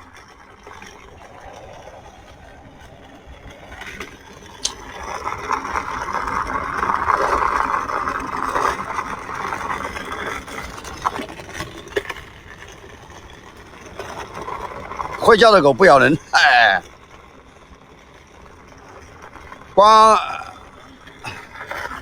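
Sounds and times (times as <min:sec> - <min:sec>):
skateboard wheels rolling on pavement: 0:00.0 - 0:22.0.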